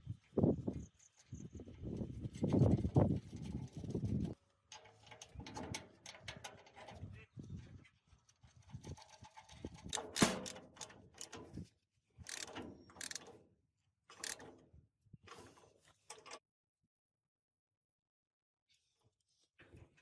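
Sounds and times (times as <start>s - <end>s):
metallic clicks and clanks: 2.3s - 7.0s, 8.5s - 11.6s, 12.2s - 13.4s, 14.1s - 14.6s.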